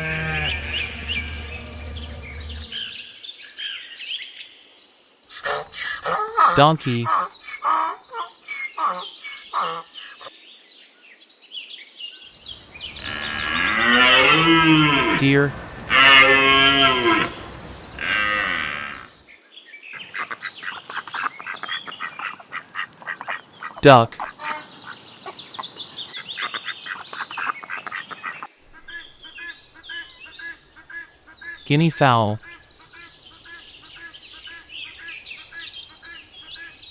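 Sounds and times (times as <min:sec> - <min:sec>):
donkey braying: 0:00.0 - 0:02.9, 0:12.6 - 0:19.1
ducks quacking: 0:12.6 - 0:19.1, 0:20.0 - 0:28.5.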